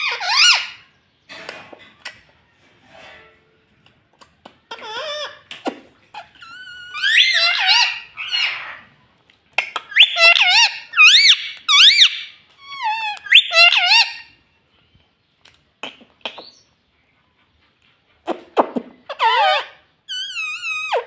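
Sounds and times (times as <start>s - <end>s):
parrot squawking: 0.0s - 0.9s, 4.7s - 8.9s, 9.6s - 14.4s, 19.1s - 21.0s.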